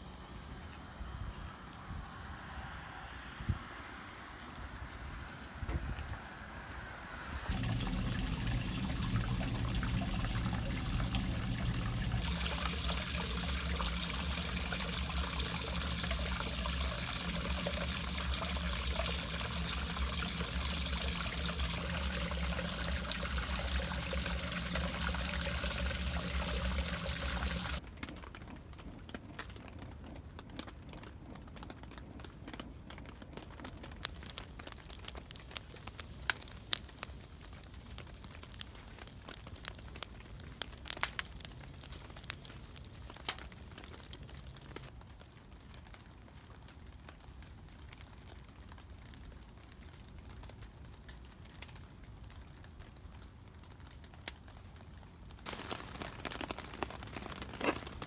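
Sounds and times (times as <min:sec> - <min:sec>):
low hum: 0:00.0 - 0:27.8
water running from a tap: 0:07.1 - 0:27.8, 0:55.5 - 0:58.0.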